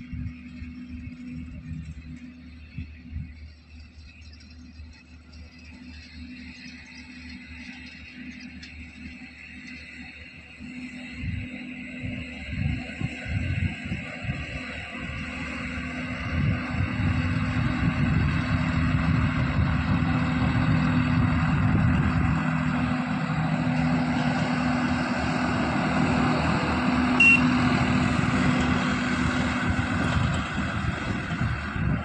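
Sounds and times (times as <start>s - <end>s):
tractor diesel engine running: 0.0s - 32.0s
short high-pitched beep: 27.2s - 27.5s.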